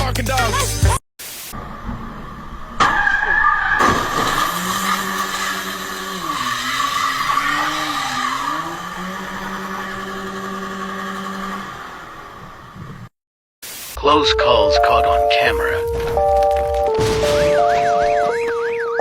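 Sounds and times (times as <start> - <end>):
car tyres squealing: 1.6 - 13.1.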